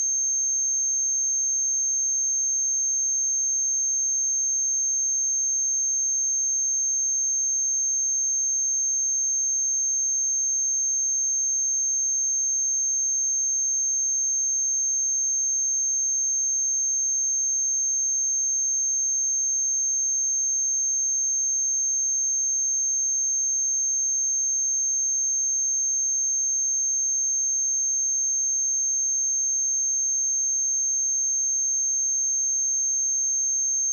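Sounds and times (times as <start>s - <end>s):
high-pitched sine test tone: 18.4s - 33.9s.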